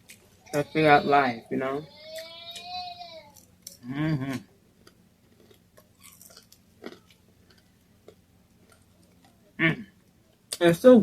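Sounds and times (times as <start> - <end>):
chewing crunchy food: 3.3 - 10.6.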